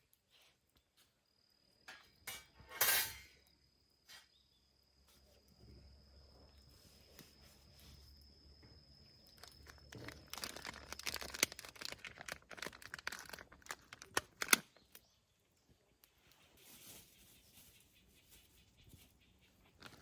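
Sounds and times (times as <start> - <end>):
high insect trill: 0.2 - 15.0
crinkling handling noise: 9.2 - 15.2, 16.0 - 20.0
sharp clicks: 10.4 - 15.1.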